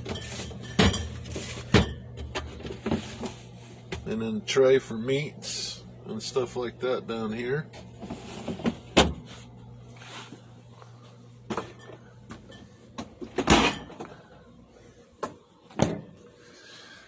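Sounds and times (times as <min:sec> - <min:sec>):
refrigerator trays sliding: 0:00.0 - 0:03.8, 0:07.8 - 0:10.5
low steady hum: 0:00.0 - 0:17.0.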